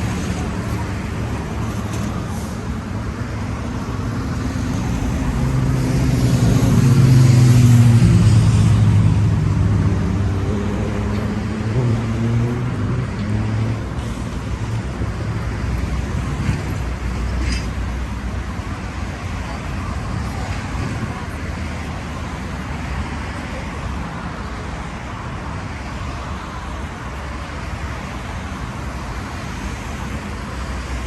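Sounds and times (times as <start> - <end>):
road traffic: 0.0 - 31.0
vehicle passing close by: 3.8 - 14.6.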